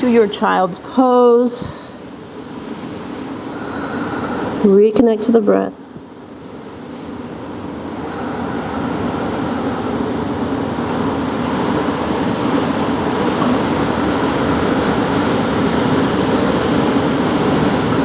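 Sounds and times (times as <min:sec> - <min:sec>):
ocean surf washing on beach: 0:06.5 - 0:18.0.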